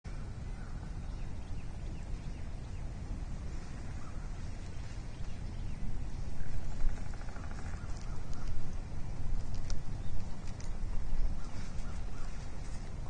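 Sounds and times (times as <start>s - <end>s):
wind rumble on microphone: 0.1s - 13.0s
faint bird chirps: 3.6s - 8.7s, 9.8s - 12.8s.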